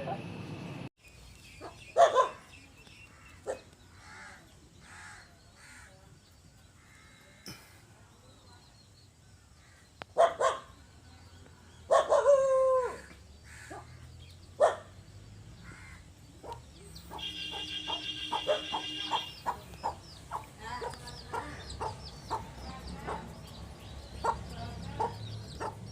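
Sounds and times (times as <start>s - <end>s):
chickens calling: 15.6s - 25.9s.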